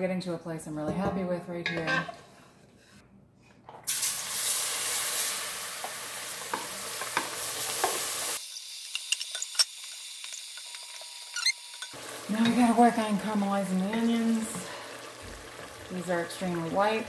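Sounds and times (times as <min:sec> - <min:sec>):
onions sizzling in hot oil: 0:03.9 - 0:17.0.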